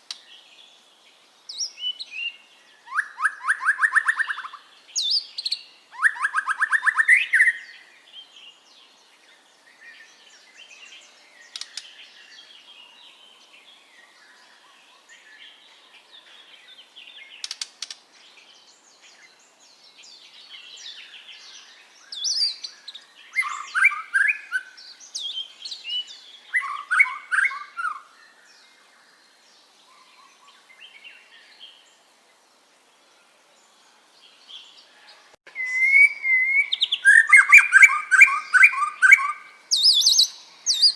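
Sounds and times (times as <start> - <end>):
bird twittering: 1.6 - 7.8, 22.0 - 28.1, 35.5 - 40.9
bird whistled phrases: 2.9 - 4.6, 6.0 - 7.7, 23.3 - 24.8, 26.5 - 28.1, 35.5 - 40.9.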